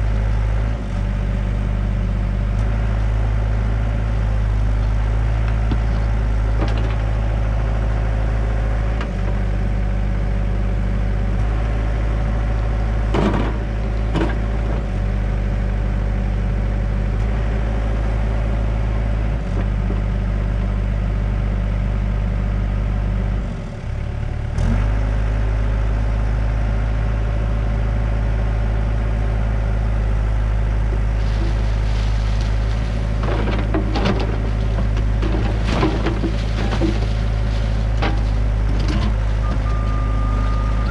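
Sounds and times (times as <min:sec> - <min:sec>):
excavator diesel engine running: 0:00.0 - 0:40.9
bucket knocking and scraping dirt: 0:30.9 - 0:39.8.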